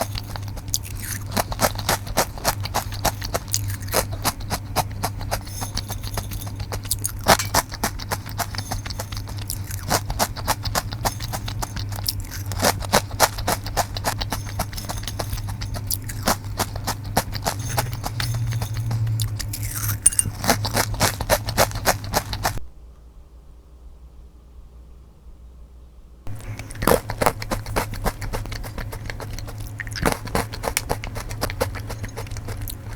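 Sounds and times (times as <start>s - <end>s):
crunchy chips being chewed: 0.0s - 22.6s, 26.3s - 32.9s
low steady hum: 0.0s - 32.9s.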